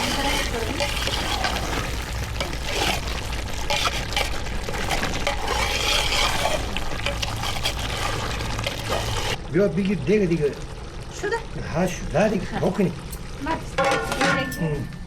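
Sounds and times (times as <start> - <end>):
water splashing: 0.0 - 9.4.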